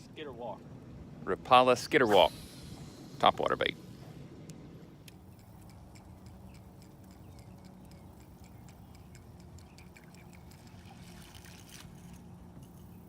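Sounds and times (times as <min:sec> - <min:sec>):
low hum: 0:00.0 - 0:13.0
fishing reel ticking: 0:04.5 - 0:13.0.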